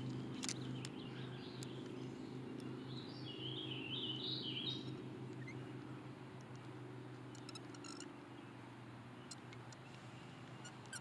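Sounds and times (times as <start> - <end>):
songbird warbling: 2.6 - 5.7, 7.3 - 8.1, 9.2 - 11.0.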